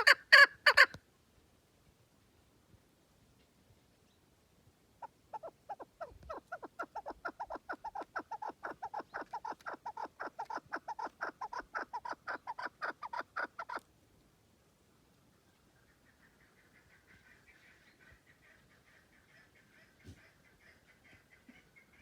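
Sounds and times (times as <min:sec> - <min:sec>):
partridge calling: 0:00.0 - 0:00.9, 0:05.0 - 0:13.8, 0:15.8 - 0:22.0.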